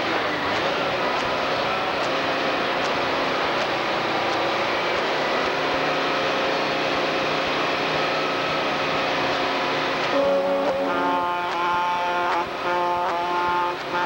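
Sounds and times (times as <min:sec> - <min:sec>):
trucks rolling by: 0:00.0 - 0:14.0
loud chord horn: 0:10.1 - 0:14.0.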